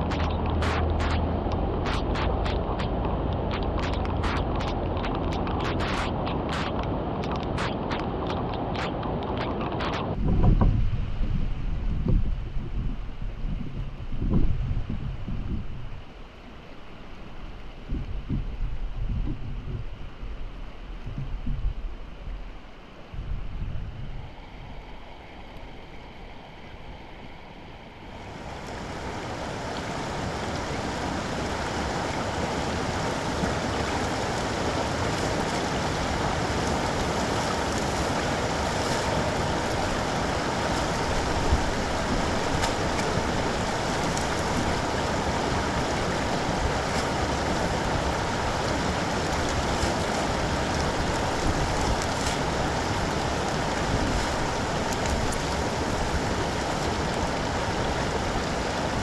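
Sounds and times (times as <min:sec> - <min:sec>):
rushing water: 0:00.0 - 0:10.2, 0:24.1 - 0:59.0.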